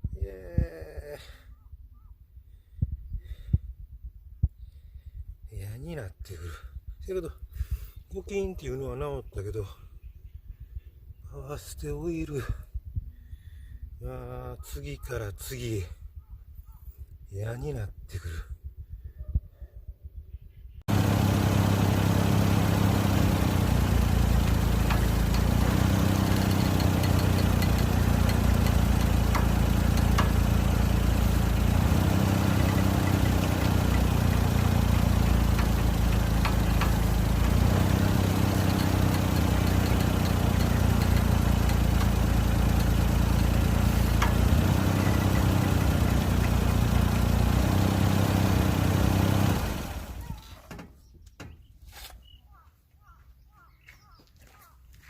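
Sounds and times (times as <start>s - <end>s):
car engine idling: 20.9s - 50.4s.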